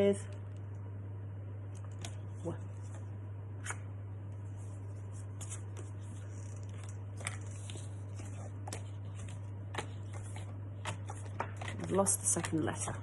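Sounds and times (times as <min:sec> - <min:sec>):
low electrical hum: 0:00.0 - 0:13.0
paper cards rustling: 0:04.5 - 0:13.0.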